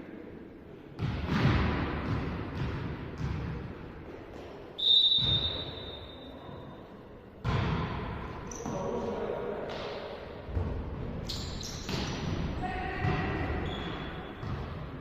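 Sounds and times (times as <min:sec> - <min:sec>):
thuds and hall noise: 0:01.0 - 0:04.6
referee's whistle blast: 0:04.8 - 0:06.3.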